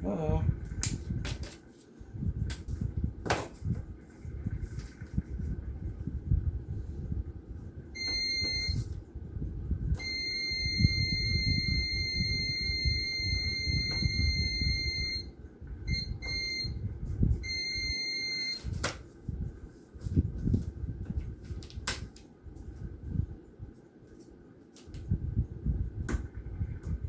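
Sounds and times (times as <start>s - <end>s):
meter continuity beeper: 8.0s - 9.0s, 10.0s - 16.8s, 17.4s - 18.7s.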